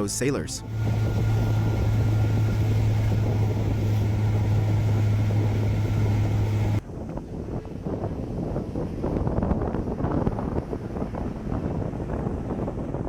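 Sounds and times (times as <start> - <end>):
boat engine droning: 0.0 - 6.8
sea noise: 0.0 - 6.8
stormy wind: 0.6 - 13.0.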